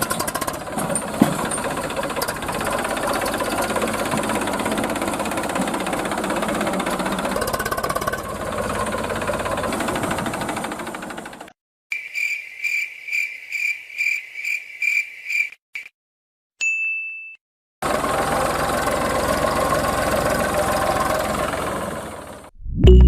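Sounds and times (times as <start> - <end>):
high beeps: 22.6 - 23.0.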